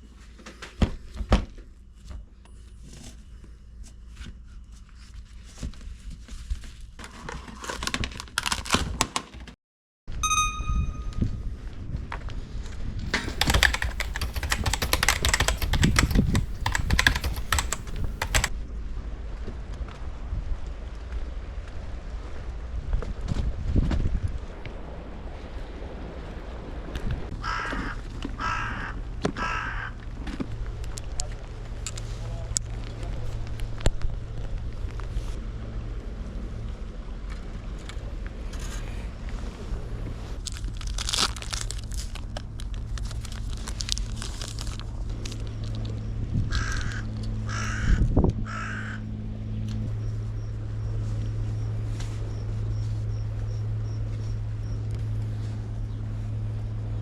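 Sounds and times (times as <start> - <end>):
crow cawing: 27.5 - 29.9, 46.5 - 47.9, 48.5 - 49.0
crackling rustle: 43.0 - 44.9.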